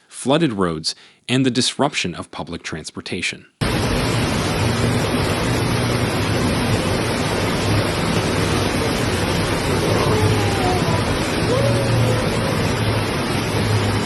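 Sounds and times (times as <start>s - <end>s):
floodwater rushing: 3.6s - 14.0s
heavy rain: 3.6s - 14.0s.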